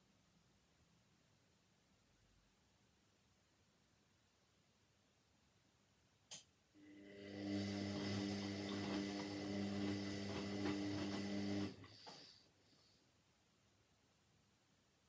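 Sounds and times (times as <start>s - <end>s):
washing machine motor hum: 6.8s - 12.1s.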